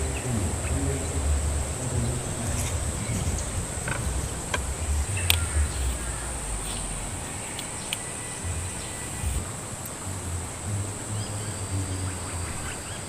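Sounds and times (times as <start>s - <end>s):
insects chirring: 0.0s - 13.0s
low rumbling: 0.0s - 13.0s
scattered clicks: 2.5s - 8.1s.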